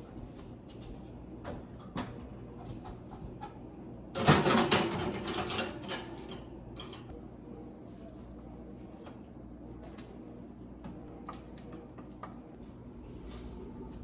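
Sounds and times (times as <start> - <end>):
kitchenware clattering: 4.2 - 7.1.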